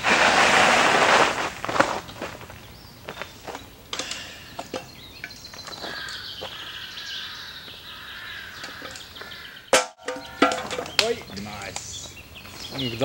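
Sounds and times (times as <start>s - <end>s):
footsteps crunching on gravel: 0.0s - 3.8s, 4.6s - 7.1s.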